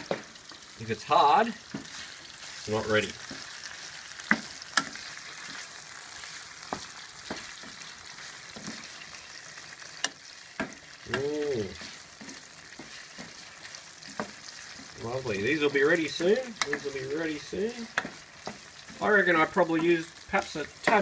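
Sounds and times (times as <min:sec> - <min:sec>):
wooden spoon knocking on pan: 0:00.0 - 0:00.3, 0:01.7 - 0:02.0, 0:03.2 - 0:03.6, 0:04.2 - 0:05.7, 0:06.6 - 0:09.0, 0:10.0 - 0:15.0, 0:16.0 - 0:17.0, 0:17.7 - 0:19.1, 0:20.8 - 0:21.0
chicken sizzling in frying pan: 0:00.0 - 0:21.0.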